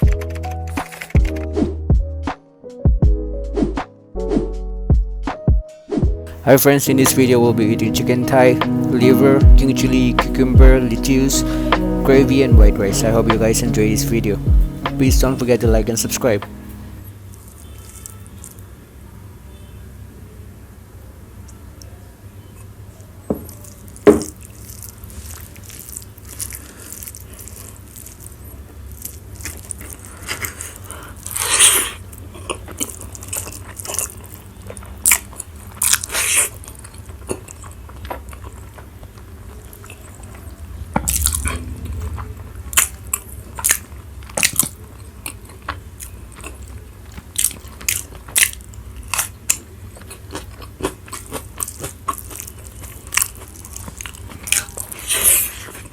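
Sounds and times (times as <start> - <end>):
low hum: 6.3 - 17.1, 40.1 - 44.3
person eating and crunching: 29.0 - 42.2, 43.6 - 55.9.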